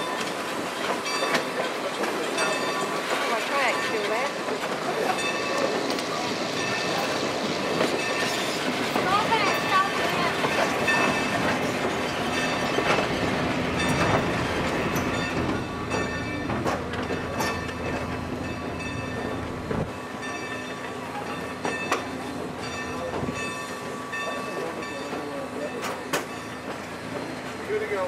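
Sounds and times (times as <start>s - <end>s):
deep train rumble: 0.0s - 28.0s
train rolling on rails: 0.0s - 28.0s.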